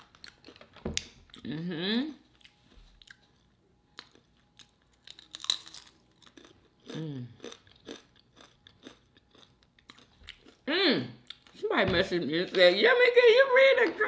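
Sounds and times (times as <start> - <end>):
crisp chip crunch: 4.0 - 10.6.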